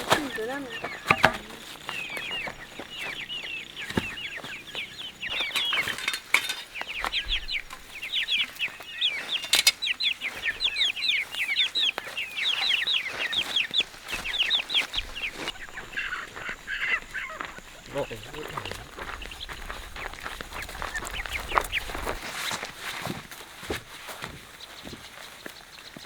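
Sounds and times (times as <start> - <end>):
chicks peeping: 0.0 - 26.0
sharp knocks: 1.0 - 1.6.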